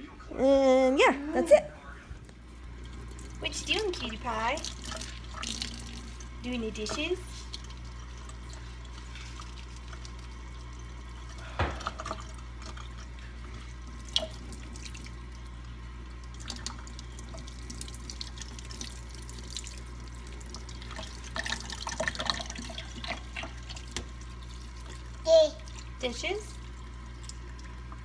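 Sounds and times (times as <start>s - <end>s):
water splashing: 2.8s - 15.4s
tap running into sink: 11.5s - 12.3s.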